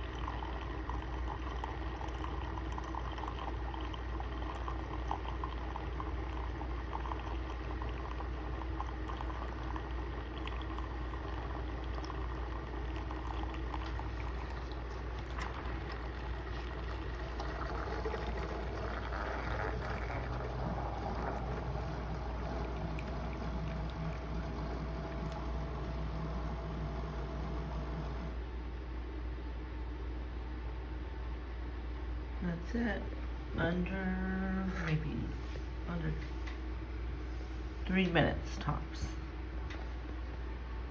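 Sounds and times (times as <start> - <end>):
liquid gurgling into mug: 0.0 - 28.3
coffee maker humming: 0.0 - 28.5, 33.7 - 40.9.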